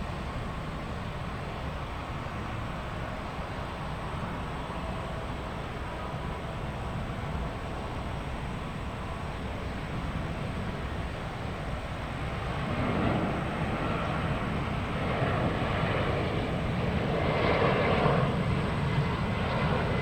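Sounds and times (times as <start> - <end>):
jet engines roaring: 9.7 - 20.0.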